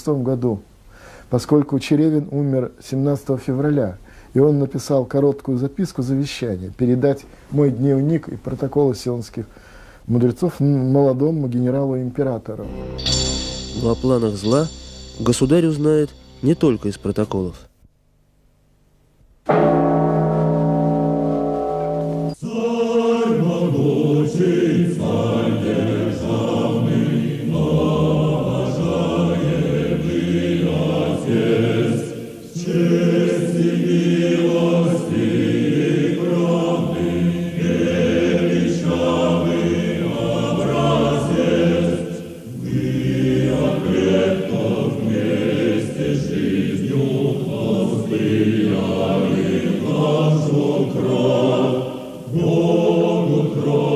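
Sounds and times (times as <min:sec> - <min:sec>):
choir singing: 0:19.5 - 0:53.9.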